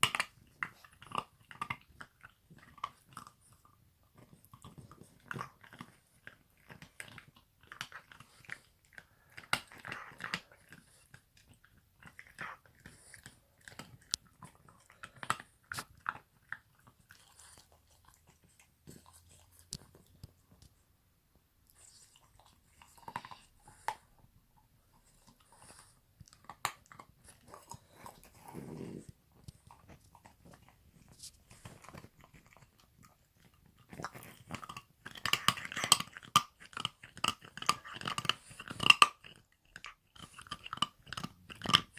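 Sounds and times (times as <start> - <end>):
puppy chewing on a brush: 0.0 - 20.8, 21.7 - 41.9
puppy chewing on brush: 24.9 - 41.9.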